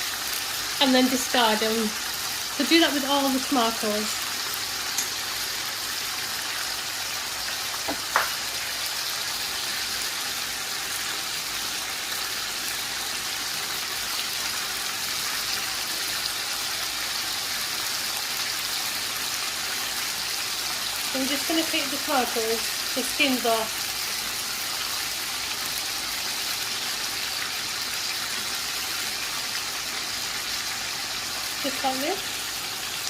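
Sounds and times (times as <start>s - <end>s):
food sizzling in a pan: 0.0s - 33.0s.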